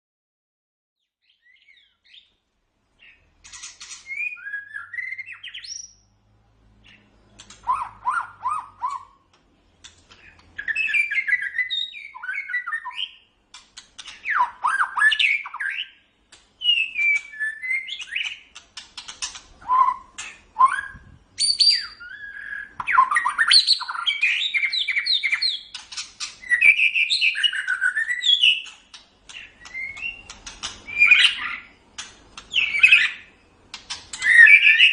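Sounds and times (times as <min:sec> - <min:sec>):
songbird whistling and rattling: 0:03.0 - 0:06.0, 0:06.9 - 0:16.0, 0:16.6 - 0:34.9.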